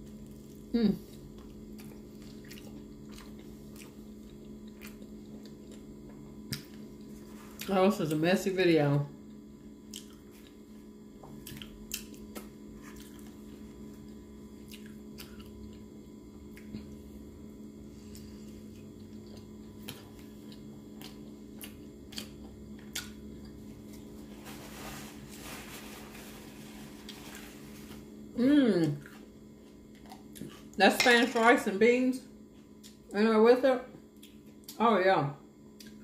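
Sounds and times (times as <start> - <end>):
steady low hum: 0.0 - 36.0
biting and chewing food: 9.3 - 17.0, 18.0 - 24.2
paper napkin rustling: 24.0 - 28.1.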